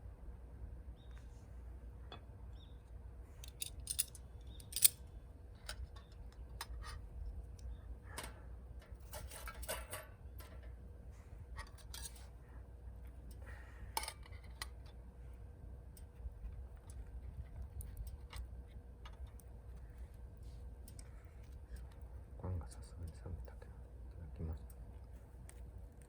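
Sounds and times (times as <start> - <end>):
wood crackling in a stove: 2.4 - 26.0.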